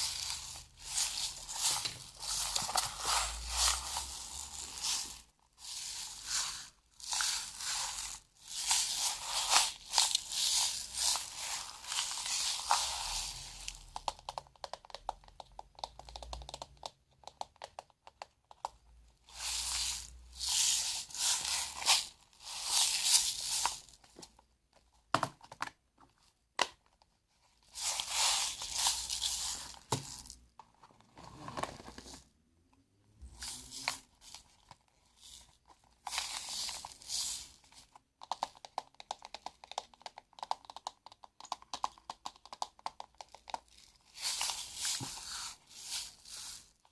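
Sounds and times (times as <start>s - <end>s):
material crinkling and crackling: 0.0s - 24.5s, 25.1s - 32.3s, 33.2s - 46.9s.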